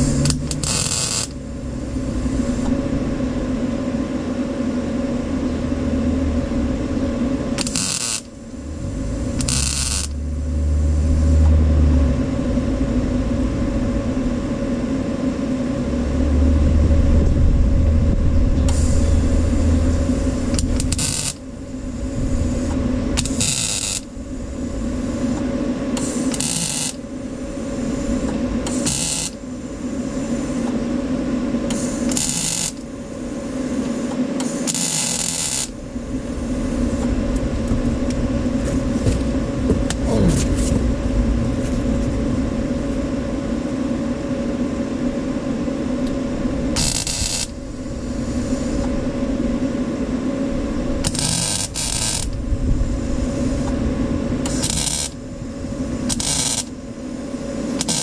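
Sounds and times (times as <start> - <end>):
power tool motor hum: 0.0 - 1.4, 26.0 - 27.0, 28.6 - 29.4, 31.7 - 32.8
harsh crackling hiss bursts: 0.0 - 2.8, 7.6 - 11.4, 18.6 - 30.7, 31.7 - 37.1, 46.8 - 48.9, 51.0 - 53.8, 54.4 - 58.0.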